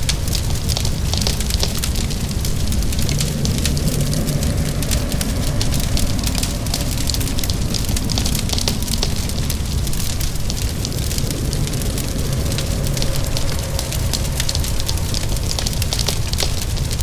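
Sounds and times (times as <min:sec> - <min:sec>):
rain hissing: 0:00.0 - 0:17.0
wood fire crackling: 0:00.0 - 0:17.0.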